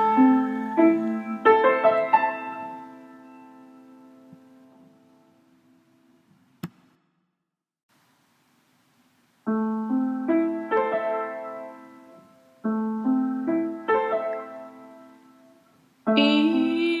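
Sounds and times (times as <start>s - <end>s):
piano chords: 0.0s - 6.0s, 9.5s - 17.0s.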